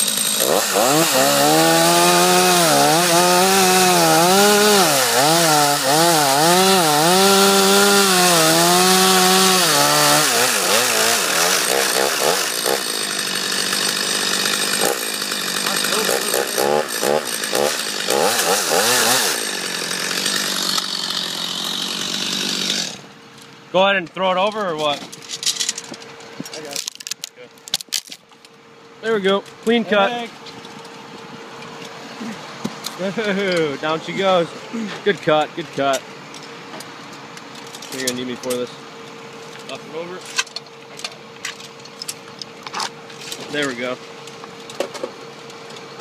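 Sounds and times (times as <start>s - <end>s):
chainsaw cutting wood: 0.0s - 23.1s.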